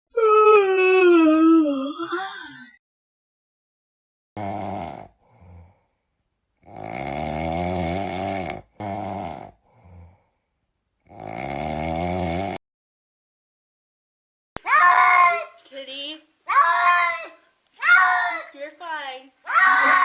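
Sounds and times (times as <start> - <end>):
loud snoring: 4.4 - 5.9, 6.6 - 10.4, 11.0 - 12.6.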